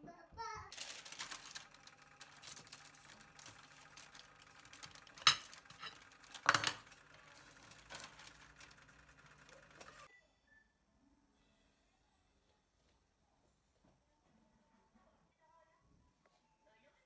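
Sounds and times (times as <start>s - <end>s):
tableware clinking: 5.2s - 6.9s.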